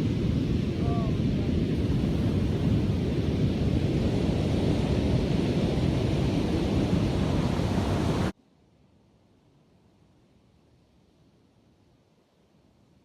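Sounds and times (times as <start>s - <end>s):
wind rumbling on microphone: 0.0s - 8.3s
ocean surf: 0.0s - 8.4s.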